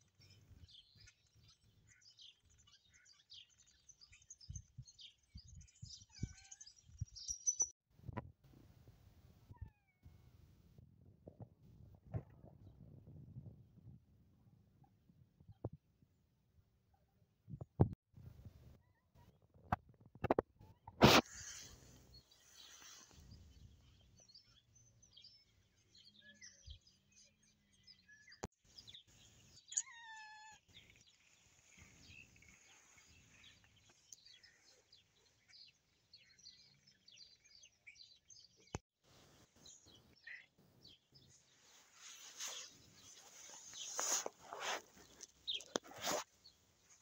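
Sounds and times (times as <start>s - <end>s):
faint bird chirps: 0.1s - 7.7s, 20.8s - 38.8s, 39.6s - 46.2s.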